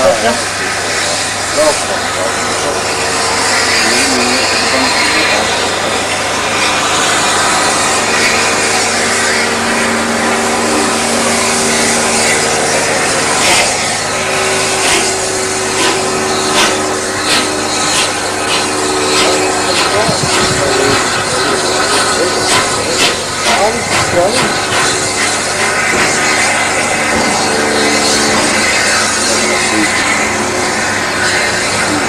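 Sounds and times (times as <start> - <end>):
train rumble and hum: 13.4 - 28.6.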